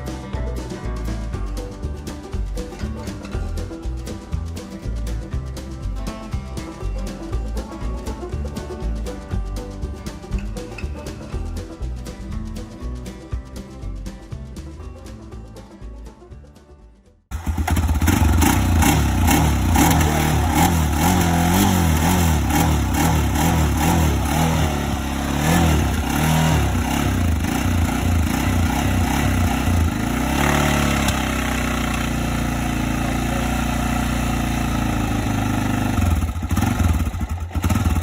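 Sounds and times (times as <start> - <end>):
quad bike engine revving: 17.3 - 38.0.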